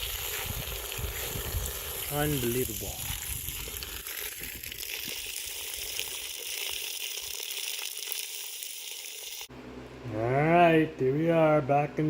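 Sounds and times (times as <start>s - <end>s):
water running into a hole: 0.0s - 9.5s.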